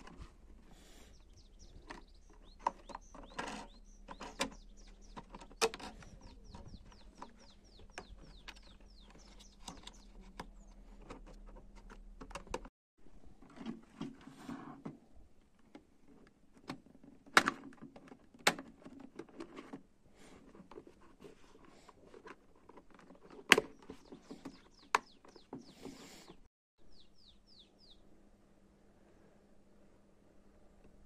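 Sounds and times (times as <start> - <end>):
clicks of objects being handled: 1.6 - 12.7, 13.4 - 26.4.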